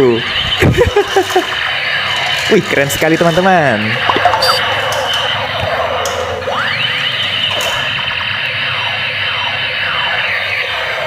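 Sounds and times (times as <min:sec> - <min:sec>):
toy electronic siren and laser sounds: 0:04.1 - 0:04.6.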